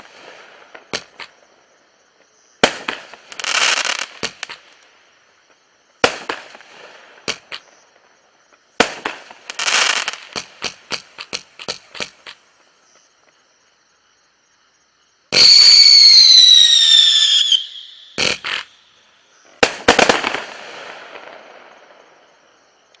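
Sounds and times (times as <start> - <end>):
firework bangs with crackle: 0.0 - 1.6, 2.6 - 4.8, 5.9 - 12.4, 15.3 - 18.8, 19.5 - 22.2
firework whistle falling in pitch: 15.4 - 18.3.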